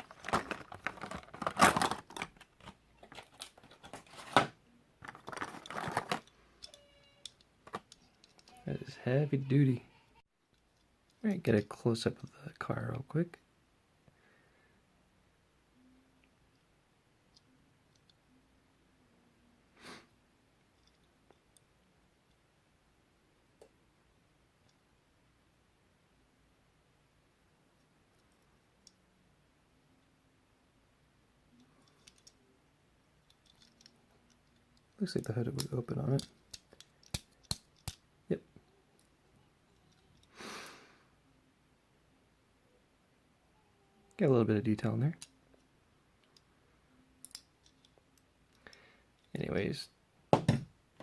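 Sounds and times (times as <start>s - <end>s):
plastic packaging crackling: 0.0s - 6.2s.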